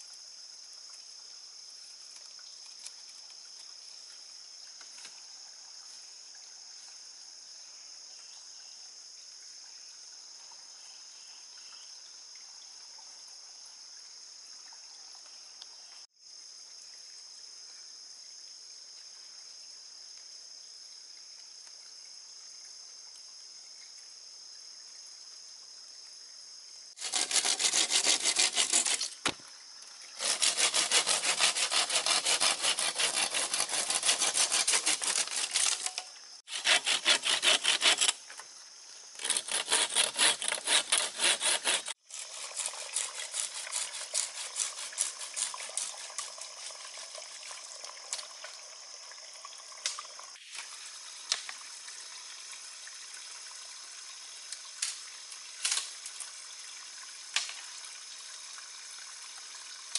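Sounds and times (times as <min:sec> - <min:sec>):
sawing through wood: 0:27.0 - 0:29.4, 0:30.2 - 0:38.2, 0:39.2 - 0:46.2.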